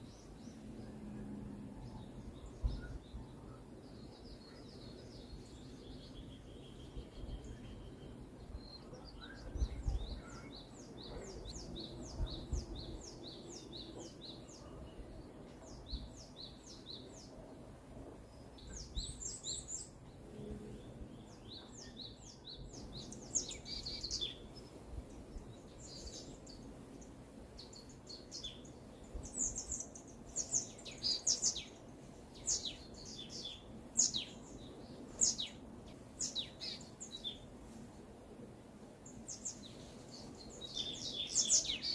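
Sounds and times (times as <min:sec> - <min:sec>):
birds chirping and calling: 0:27.6 - 0:35.6, 0:39.1 - 0:41.9.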